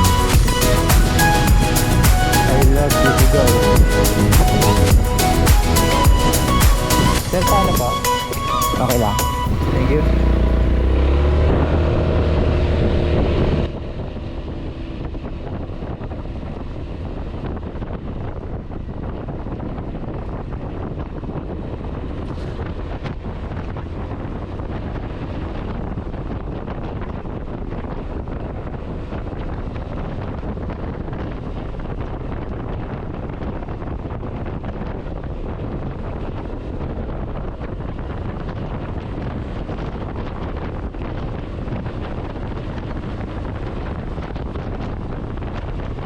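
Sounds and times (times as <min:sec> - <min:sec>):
background music: 0:00.0 - 0:11.0
wind buffeting microphone: 0:00.0 - 0:46.0.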